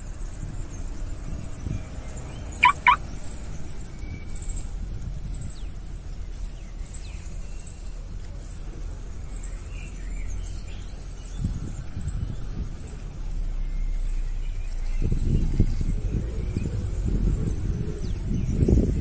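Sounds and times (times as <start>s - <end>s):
wind rumble on microphone: 0.0s - 19.0s
loud bird calls: 2.4s - 3.1s
faint high chirps: 2.6s - 3.0s.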